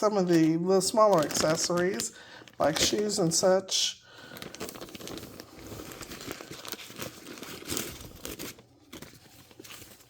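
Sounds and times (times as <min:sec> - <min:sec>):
plastic bag crinkling: 0:00.0 - 0:03.5, 0:04.1 - 0:10.0.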